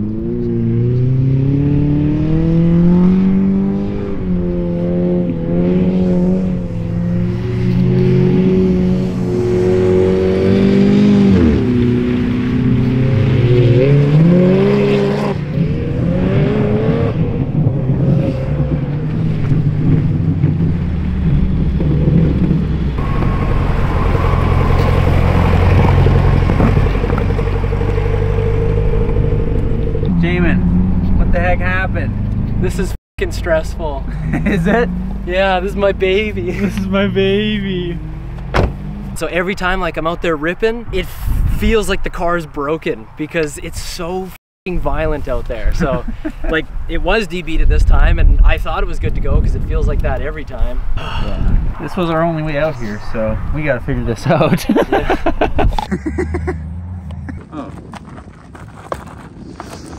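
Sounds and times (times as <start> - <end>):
car engine revving: 0.0 - 39.8.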